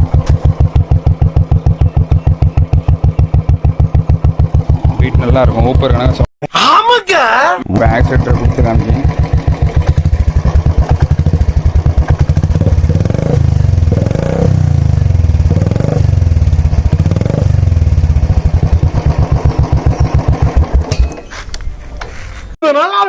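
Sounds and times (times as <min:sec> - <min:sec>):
motorcycle engine idling and revving: 0:00.0 - 0:06.3, 0:07.7 - 0:21.8.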